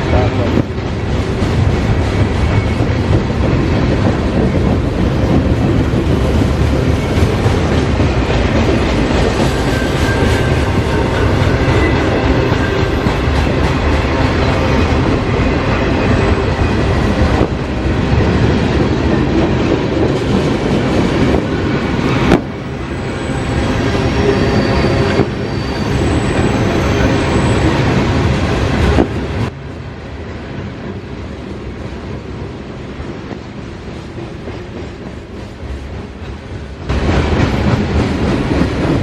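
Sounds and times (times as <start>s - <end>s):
freight cars rumbling on rails: 0.0s - 39.0s
high wheel squeals: 9.3s - 13.2s, 22.8s - 28.2s.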